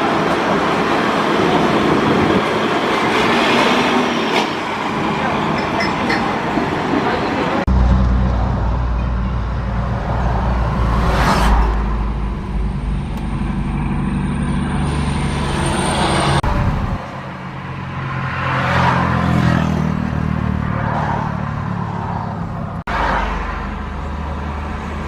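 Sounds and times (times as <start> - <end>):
truck engines driving past: 7.0 - 25.0.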